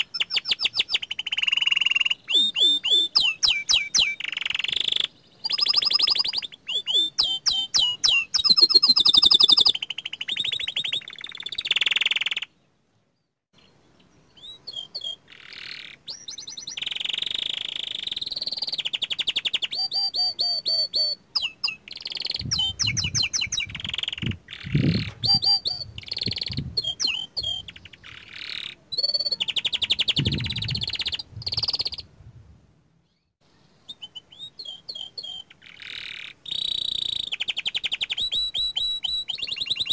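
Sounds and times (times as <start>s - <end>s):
canary singing trills: 0.0s - 12.6s, 13.6s - 32.1s, 33.0s - 39.9s.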